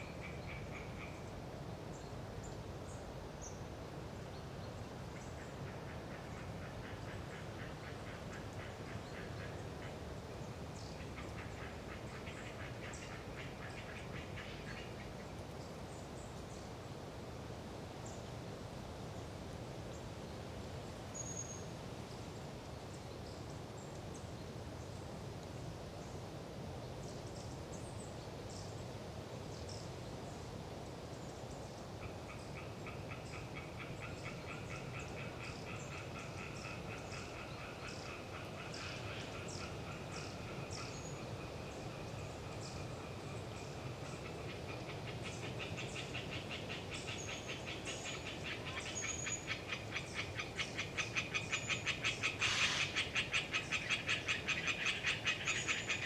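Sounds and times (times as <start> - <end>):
tree frogs calling: 0.0 - 1.4, 5.0 - 15.9, 31.9 - 56.0
wind in trees: 0.0 - 56.0
high bird calls: 44.2 - 56.0.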